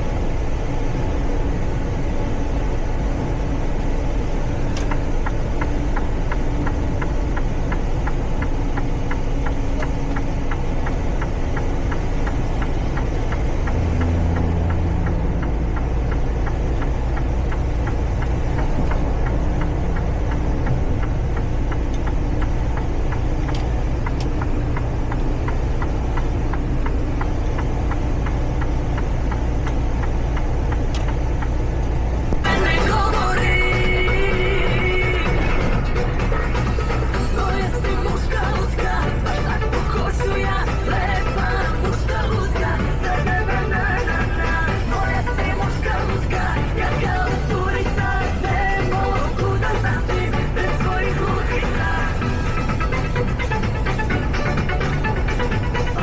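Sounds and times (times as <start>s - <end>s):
rapid light ticking: 0.0s - 56.0s
truck engine and road noise: 0.0s - 56.0s.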